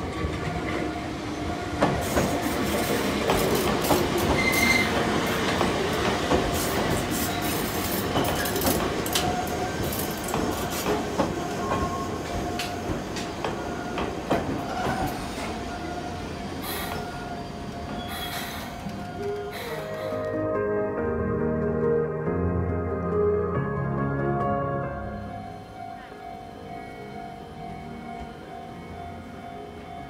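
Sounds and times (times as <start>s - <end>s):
train wheels clicking over rail joints: 1.8s - 15.7s
wheel squeal: 4.3s - 5.0s, 17.9s - 20.1s
level-crossing bell ringing: 24.9s - 30.0s.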